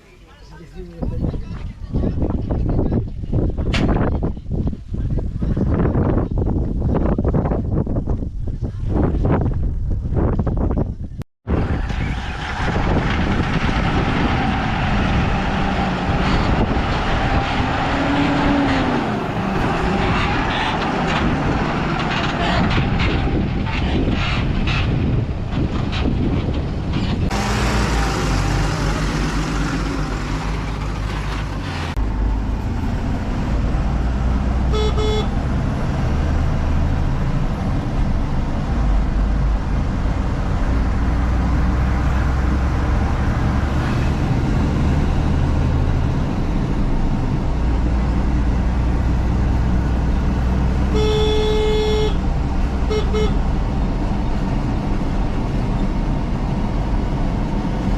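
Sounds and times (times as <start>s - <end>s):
diesel engine running under load: 11.5s - 57.9s
vehicle horn: 34.7s - 35.4s, 50.9s - 52.2s, 52.8s - 53.4s.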